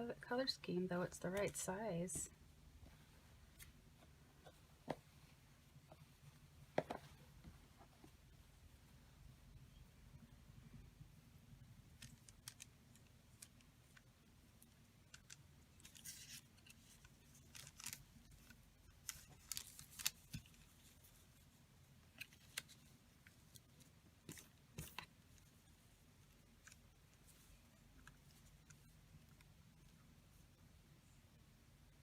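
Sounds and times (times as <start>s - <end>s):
paper rustling and light clicks: 15.1s - 21.2s, 22.1s - 25.5s.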